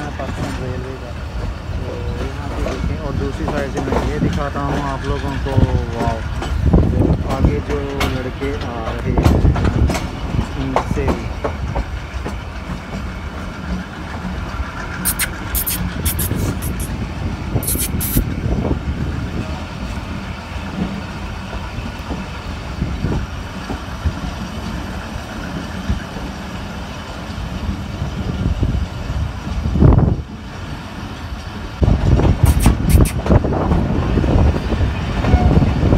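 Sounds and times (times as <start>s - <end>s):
train wheels rumbling on rail: 0.0s - 35.9s
high-pitched squeaks: 15.0s - 16.9s, 17.6s - 18.2s, 32.5s - 33.2s.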